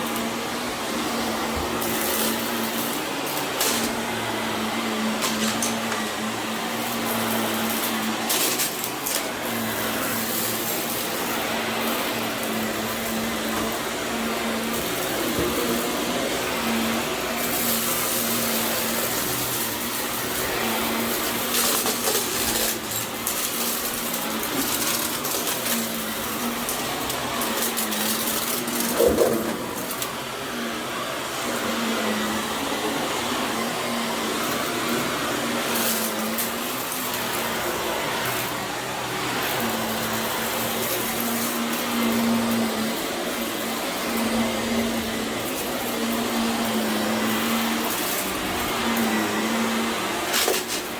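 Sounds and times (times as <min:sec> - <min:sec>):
vacuum cleaner running: 0:00.0 - 0:50.9.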